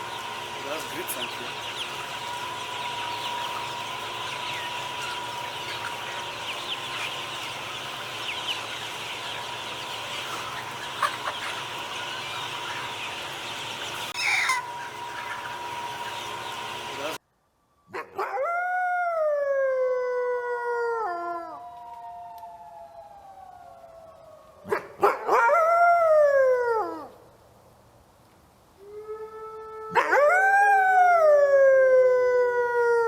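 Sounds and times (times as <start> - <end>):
chickens clucking: 0.0 - 17.2
chicken call falling in pitch: 14.2 - 14.7.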